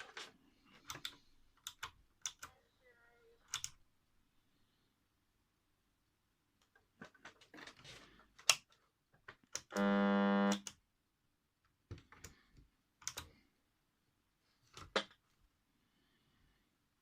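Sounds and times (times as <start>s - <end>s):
alarm buzzer: 9.7s - 10.6s.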